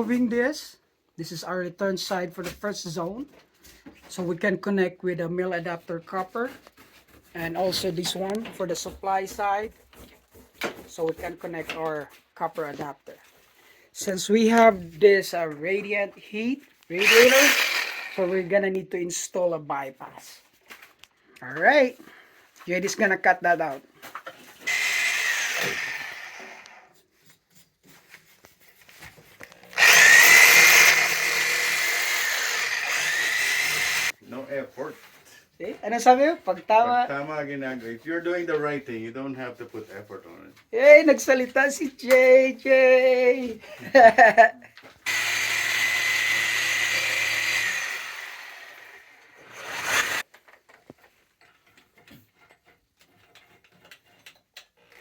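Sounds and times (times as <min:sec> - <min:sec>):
power saw cutting pipe: 0:17.0 - 0:18.5, 0:24.6 - 0:26.9, 0:29.8 - 0:34.2, 0:45.0 - 0:50.3.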